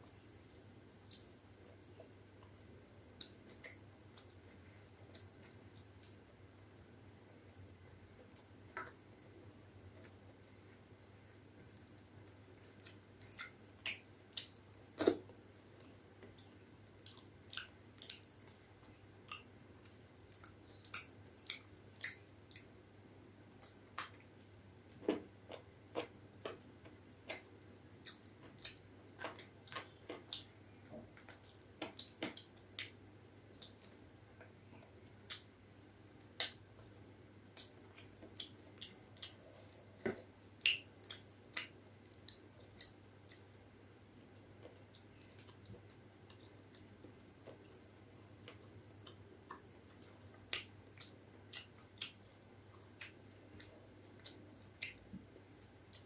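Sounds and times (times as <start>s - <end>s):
faint steady hum: 0.0s - 56.0s
chewing mouth sounds: 49.0s - 55.0s.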